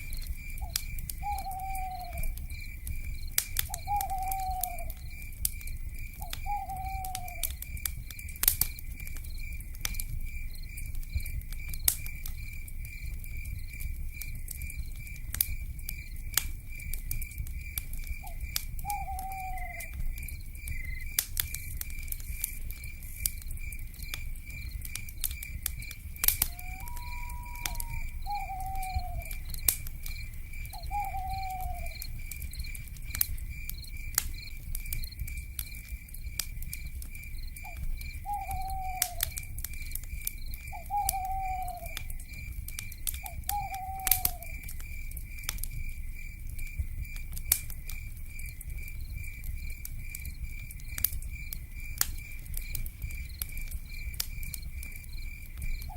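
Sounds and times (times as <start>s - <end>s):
wood fire crackling and popping: 0.0s - 55.9s
owl calling: 0.6s - 2.4s, 3.7s - 5.0s, 6.2s - 7.5s, 18.2s - 19.9s, 26.4s - 29.5s, 30.8s - 32.0s, 37.6s - 39.3s, 40.7s - 42.1s, 43.2s - 44.6s
pulsing insect trill: 25.4s - 35.2s.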